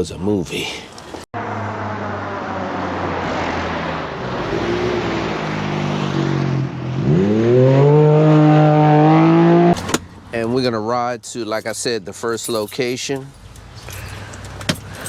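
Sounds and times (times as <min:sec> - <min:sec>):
vehicle engine revving: 0:01.4 - 0:10.0.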